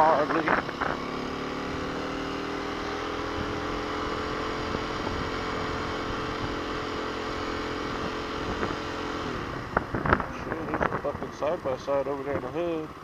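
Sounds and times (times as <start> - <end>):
motorcycle engine cruising: 0.0 - 13.0
wind rush: 8.4 - 11.1.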